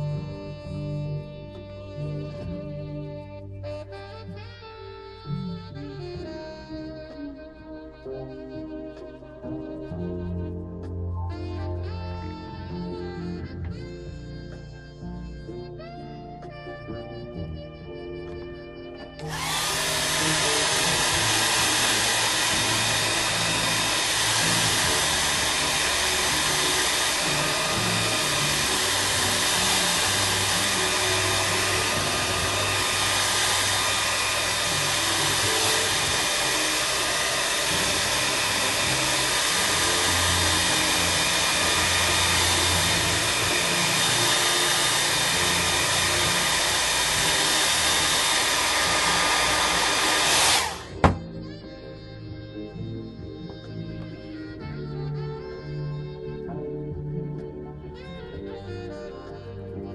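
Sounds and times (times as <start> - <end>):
background music: 0.0 - 59.9
electric tool motor whirring: 19.0 - 51.3.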